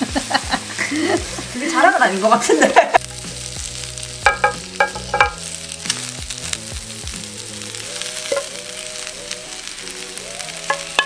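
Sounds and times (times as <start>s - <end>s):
food sizzling on hot platter: 0.0s - 11.0s.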